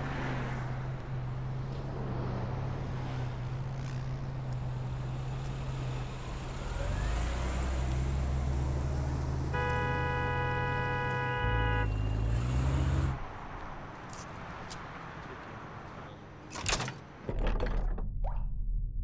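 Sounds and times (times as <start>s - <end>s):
car horn: 9.5s - 13.2s.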